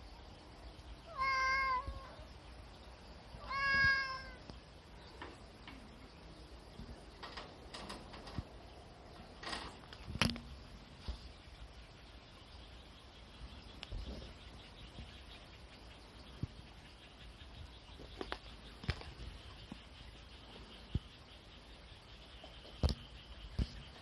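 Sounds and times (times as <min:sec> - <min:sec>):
cat meowing: 0:01.1 - 0:02.2, 0:03.4 - 0:04.4.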